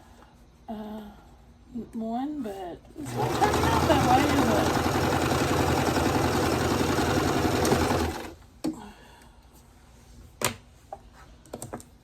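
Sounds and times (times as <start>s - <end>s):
sewing machine stitching: 3.0s - 8.4s.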